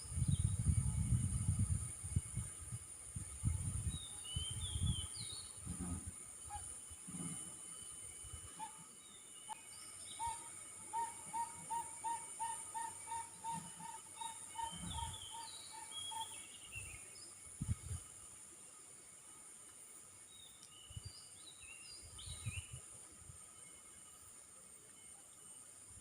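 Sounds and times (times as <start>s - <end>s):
insects droning: 0.0s - 26.0s
birds chirping: 9.1s - 17.4s.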